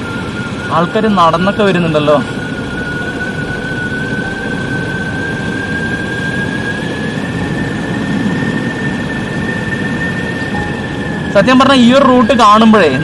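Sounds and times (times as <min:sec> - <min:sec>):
high whine rising in pitch: 0:00.0 - 0:13.0
wind rushing: 0:02.1 - 0:11.9.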